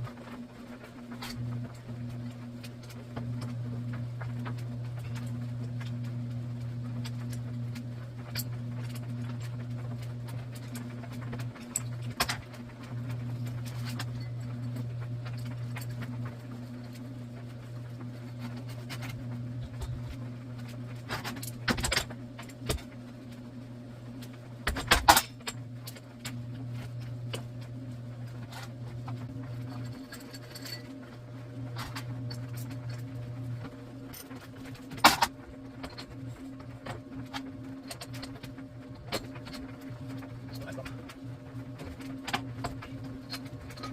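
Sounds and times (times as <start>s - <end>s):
steady low hum: 0.0s - 43.9s
metallic clinks and rattles: 29.6s - 30.9s.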